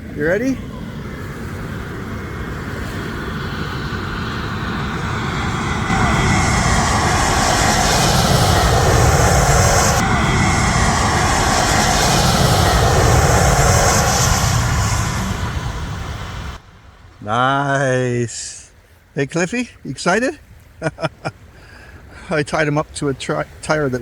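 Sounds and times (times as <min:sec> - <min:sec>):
jet airliner passing overhead: 0:00.0 - 0:18.5.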